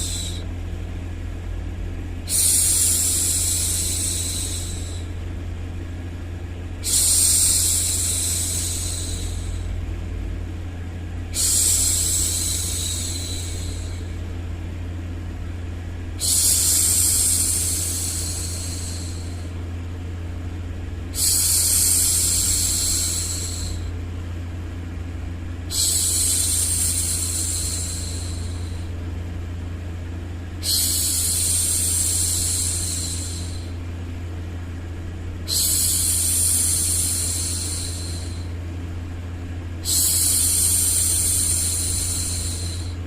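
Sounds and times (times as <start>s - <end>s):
low white noise: 0.0s - 43.0s
woman shushing: 2.3s - 5.1s, 6.8s - 9.7s, 11.3s - 14.1s, 21.1s - 23.9s, 30.6s - 33.7s, 35.5s - 38.5s.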